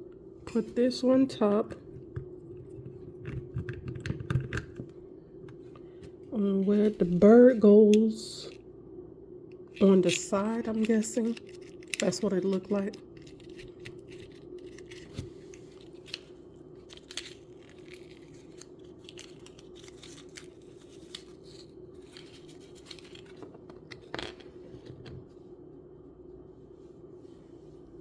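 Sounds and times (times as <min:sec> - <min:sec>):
steady low hum: 0:00.0 - 0:28.0
plastic parts clicking and rustling: 0:09.8 - 0:25.2.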